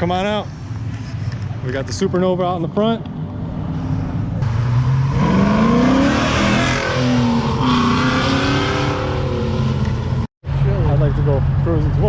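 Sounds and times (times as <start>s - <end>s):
car engine accelerating hard: 4.4s - 10.2s.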